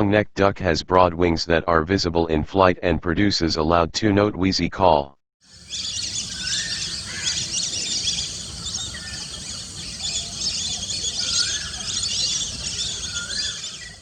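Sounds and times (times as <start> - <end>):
ducks high wheezy whistling calls: 5.5 - 14.0
lower slurred duck whistles: 5.6 - 14.0.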